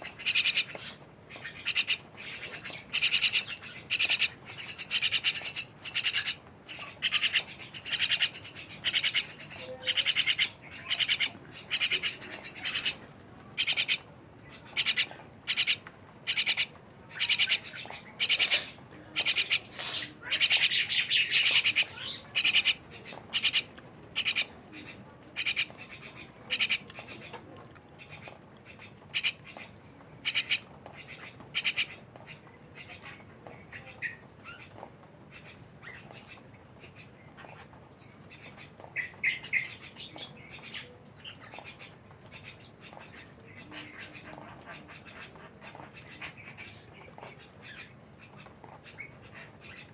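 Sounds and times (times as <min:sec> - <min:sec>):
starling giving harsh calls: 0:00.0 - 0:13.0, 0:13.6 - 0:14.0, 0:14.7 - 0:24.5.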